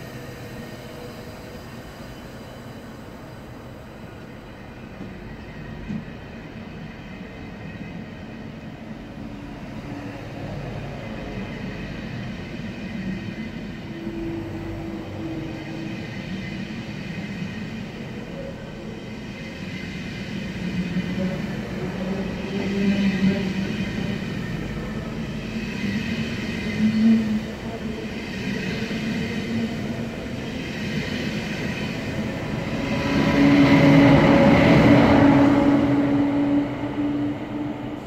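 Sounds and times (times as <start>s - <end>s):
train rumbling past: 0.0s - 38.0s.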